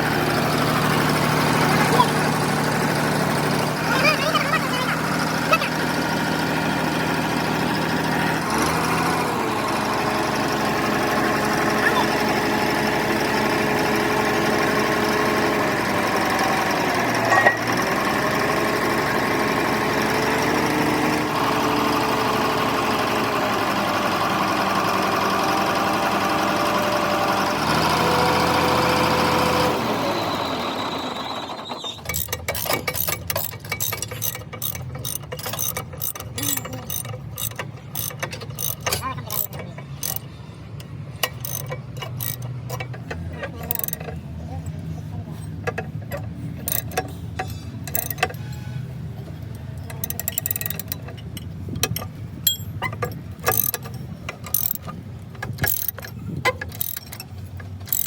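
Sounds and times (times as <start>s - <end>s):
motor-driven machine running: 0.0s - 30.0s, 30.9s - 44.1s, 46.2s - 48.6s, 49.9s - 51.1s, 53.3s - 58.0s
sharp metallic clicks: 32.0s - 44.2s, 45.7s - 48.6s, 49.4s - 58.0s.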